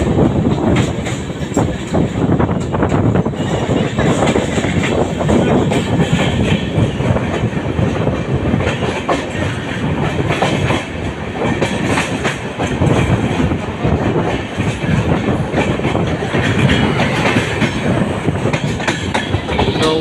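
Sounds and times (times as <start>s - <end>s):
train wheels clattering over rail joints: 0.0s - 20.0s.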